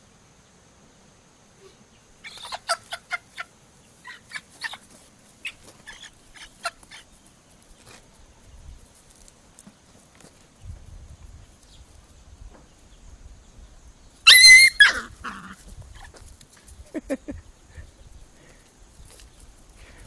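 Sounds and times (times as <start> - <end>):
chicken clucking: 2.2 - 7.2.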